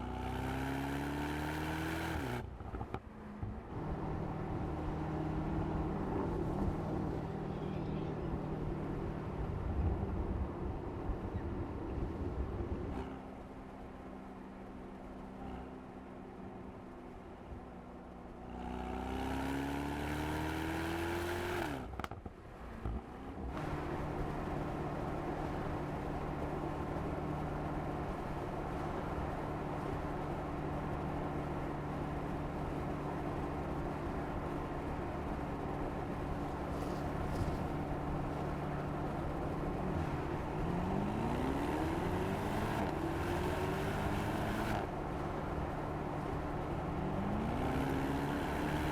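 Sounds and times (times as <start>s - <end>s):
car engine revving: 39.0s - 48.9s.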